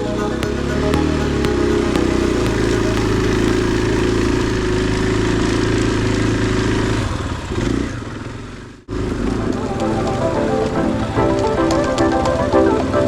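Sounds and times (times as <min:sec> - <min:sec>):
dirt bike engine running: 0:00.1 - 0:09.5.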